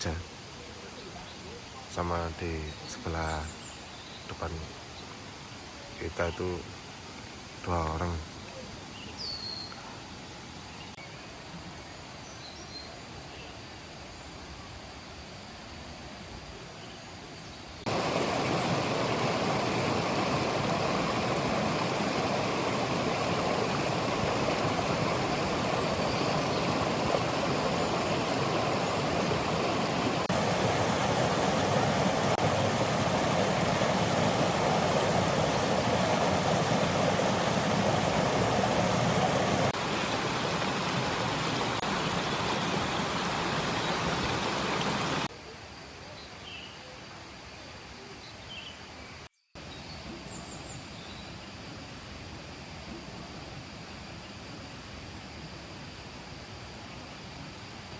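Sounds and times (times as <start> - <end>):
river water rushing: 17.9 - 45.3.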